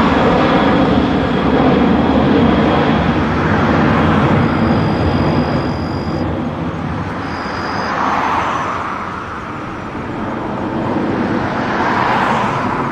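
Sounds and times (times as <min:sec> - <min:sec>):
jet airliner taking off: 0:00.0 - 0:12.9
high thin whine: 0:02.8 - 0:10.0.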